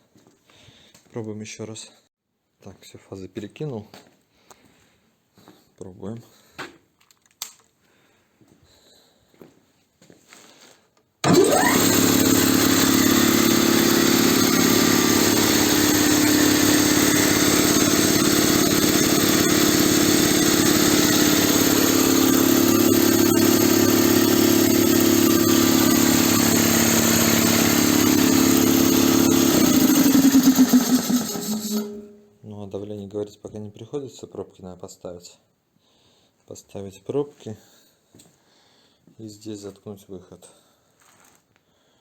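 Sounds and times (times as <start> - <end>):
piston compressor running: 11.2 - 32.2.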